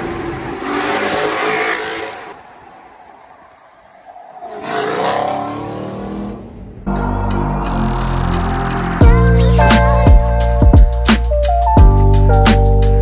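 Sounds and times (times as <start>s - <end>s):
car engine revving: 0.0s - 2.5s, 3.7s - 9.0s.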